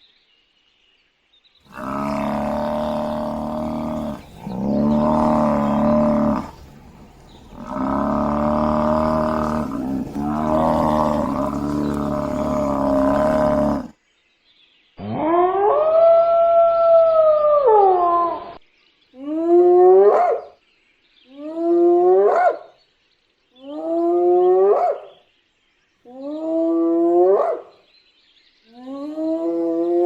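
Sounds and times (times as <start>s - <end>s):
animal calling: 1.7s - 13.9s.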